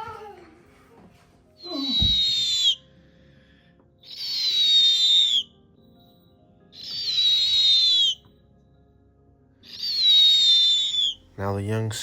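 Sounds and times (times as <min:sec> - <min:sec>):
owl screeching: 0:01.6 - 0:02.9, 0:04.0 - 0:05.5, 0:06.8 - 0:08.3, 0:09.6 - 0:11.3.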